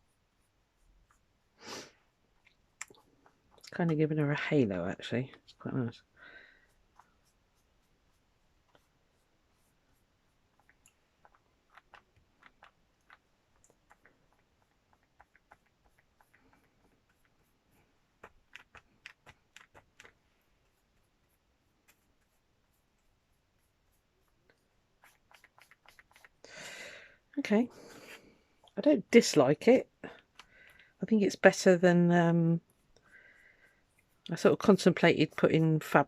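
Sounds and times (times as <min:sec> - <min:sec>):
hands tapping and scratching: 0:06.8 - 0:26.5.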